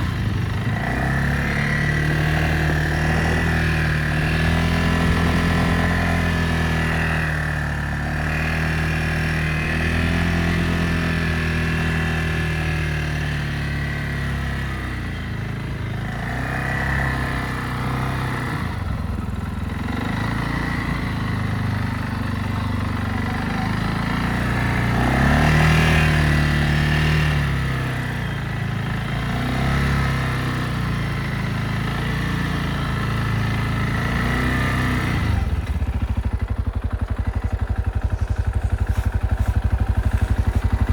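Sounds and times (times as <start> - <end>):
quad bike engine revving: 0.0 - 40.9.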